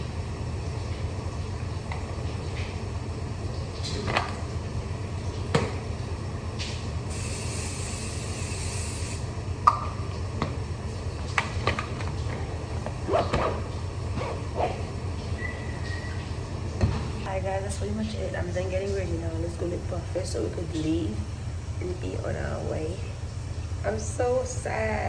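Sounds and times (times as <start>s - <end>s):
steady low hum: 0.0s - 25.0s
hiss: 7.1s - 9.3s.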